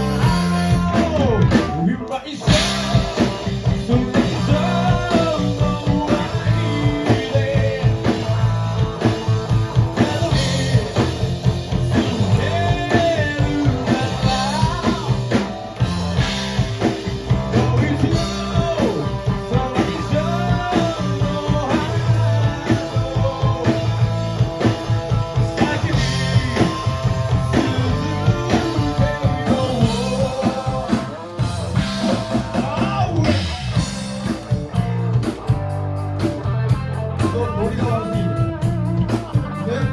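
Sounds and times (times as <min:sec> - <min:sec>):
person singing: 0:00.0 - 0:11.1, 0:12.2 - 0:15.5, 0:17.5 - 0:33.7
drum kit: 0:00.0 - 0:39.9
electric guitar: 0:00.0 - 0:39.9.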